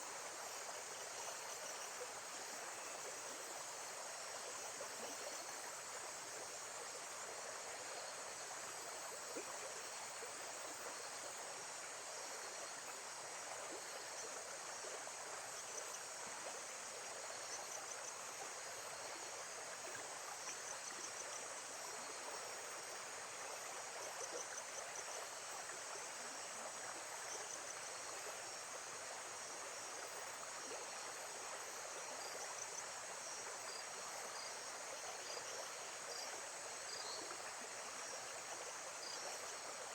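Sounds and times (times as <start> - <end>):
insect chirps: 0.0 - 39.9.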